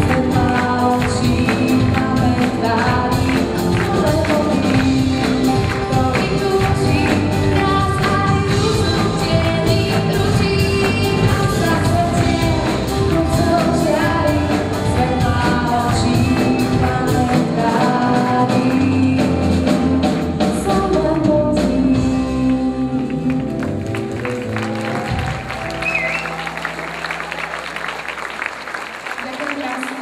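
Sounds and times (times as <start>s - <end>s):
person singing: 0.0s - 23.6s
live band playing: 0.0s - 30.0s.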